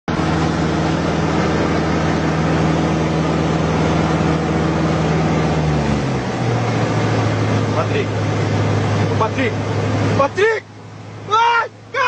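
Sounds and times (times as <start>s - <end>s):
airplane engine droning: 0.1s - 12.0s.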